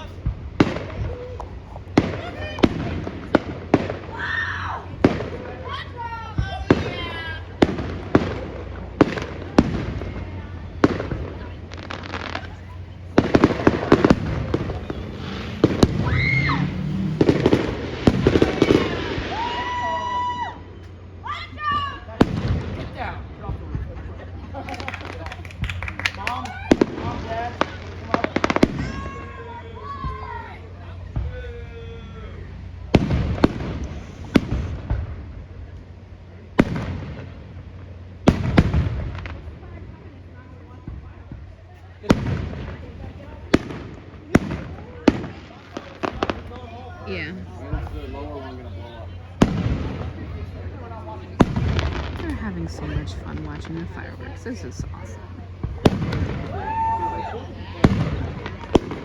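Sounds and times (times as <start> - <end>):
dense firework crackling: 0.0 - 59.0
firework shells bursting: 6.6 - 19.6.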